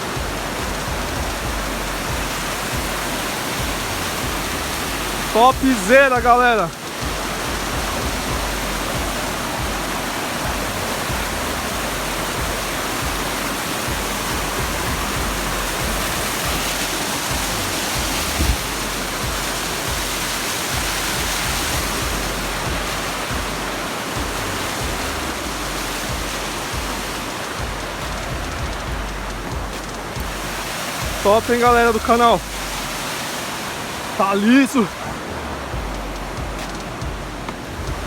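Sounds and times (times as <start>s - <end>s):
waterfall rushing: 0.0s - 38.0s
brief thump: 18.3s - 18.7s.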